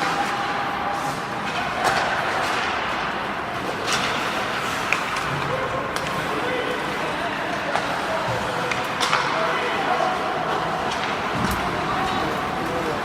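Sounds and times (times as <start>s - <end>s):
hockey stick or puck clacks: 3.7s - 6.2s, 7.5s - 8.0s, 8.6s - 9.4s, 10.9s - 11.6s.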